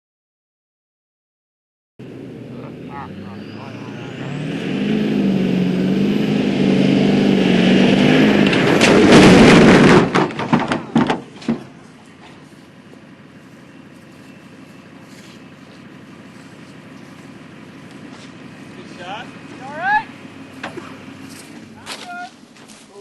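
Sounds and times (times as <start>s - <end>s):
pickup truck engine running: 2.0s - 22.9s
loud rush of noise: 2.5s - 10.5s
truck landing with bangs: 7.8s - 12.4s, 20.4s - 22.4s.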